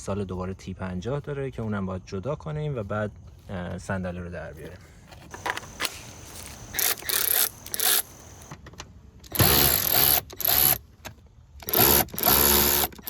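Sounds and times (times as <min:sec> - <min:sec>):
cordless power driver motor whine: 0:05.3 - 0:08.5, 0:09.3 - 0:10.8, 0:11.6 - 0:13.0.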